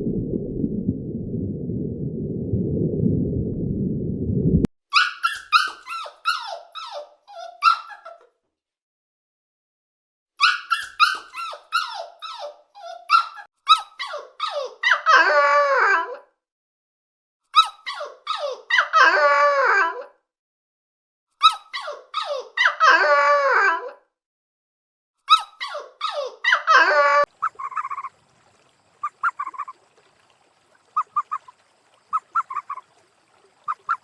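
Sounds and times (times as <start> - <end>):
animal squeaky chirps: 27.4 - 28.1, 29.0 - 29.7, 31.0 - 31.5, 32.1 - 32.8, 33.7 - 34.0.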